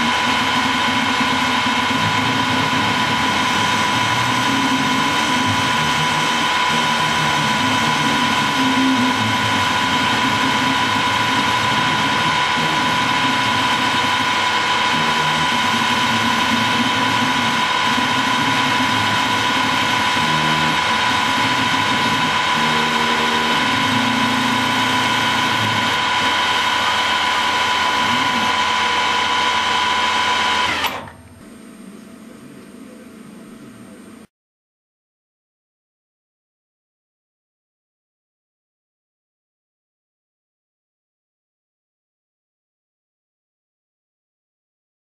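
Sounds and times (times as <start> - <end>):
lathe running with high whine: 0.0 - 34.3.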